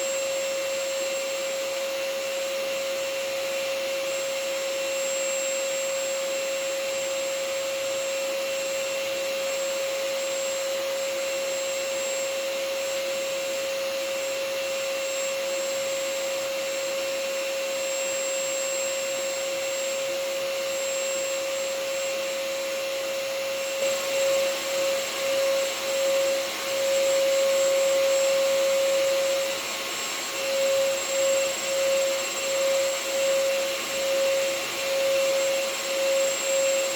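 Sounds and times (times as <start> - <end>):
vacuum cleaner running: 0.0 - 36.9.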